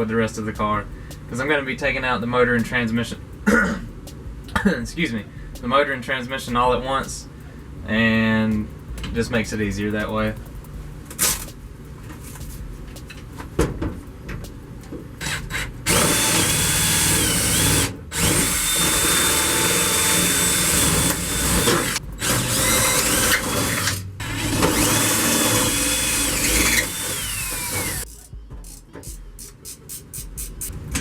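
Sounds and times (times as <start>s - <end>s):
power drill whining: 15.2s - 28.0s.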